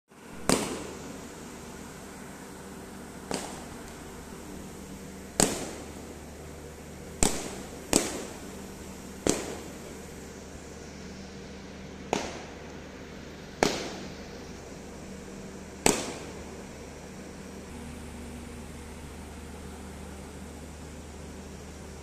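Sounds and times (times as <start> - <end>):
sharp loud bangs: 5.4 - 5.9.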